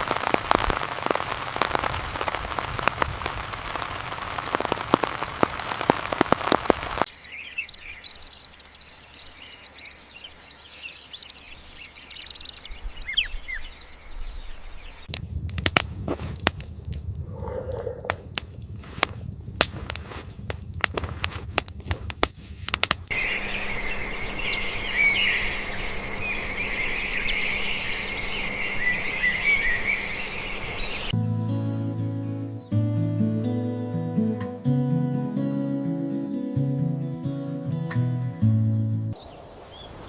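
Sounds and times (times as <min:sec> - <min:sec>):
birds chirping: 0:07.0 - 0:15.1, 0:22.9 - 0:31.6, 0:38.5 - 0:40.0.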